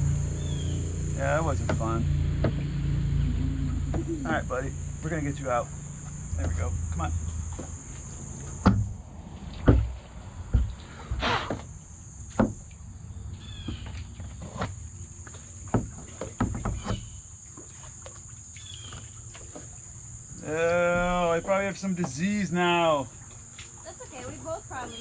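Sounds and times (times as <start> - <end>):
crickets and insects chirping: 0.0 - 25.0
knocks: 1.6 - 2.7, 8.6 - 8.9, 12.3 - 12.6.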